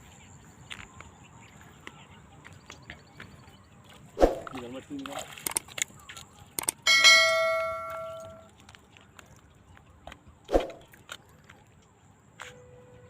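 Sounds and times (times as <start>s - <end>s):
struck metal ringing: 6.9s - 8.4s.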